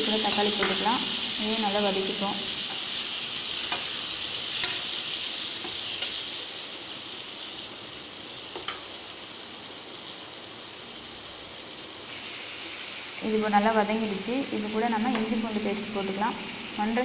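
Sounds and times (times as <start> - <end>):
onions sizzling in hot oil: 0.0 - 17.0
spoon clicking against pan: 4.6 - 4.9.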